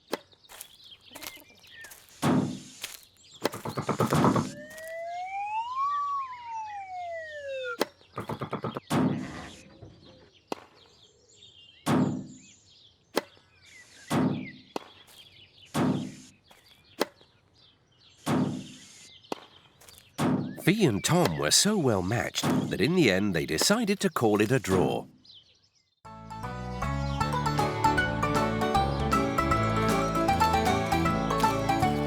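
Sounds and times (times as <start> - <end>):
ball hits with sharp crack: 11.9 - 12.3, 22.4 - 22.8.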